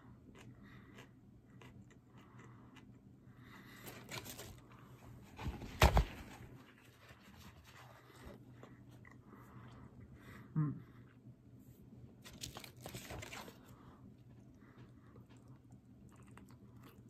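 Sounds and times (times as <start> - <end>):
person chewing food: 0.0 - 3.7, 12.2 - 17.0.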